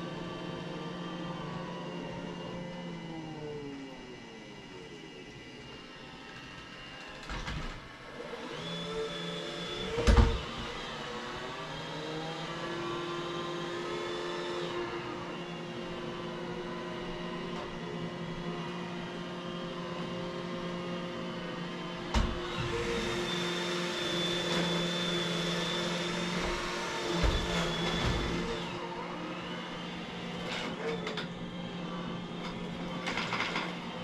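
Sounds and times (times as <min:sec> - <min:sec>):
vacuum cleaner running: 0:00.0 - 0:34.0
vacuum cleaner bumping into things: 0:22.1 - 0:22.8, 0:26.3 - 0:28.5.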